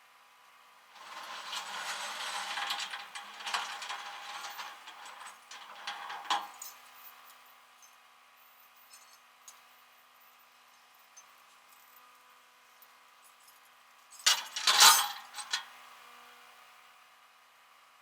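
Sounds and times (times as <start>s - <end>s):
light clinks and knocks: 1.0s - 7.9s, 8.8s - 9.6s, 13.4s - 15.7s.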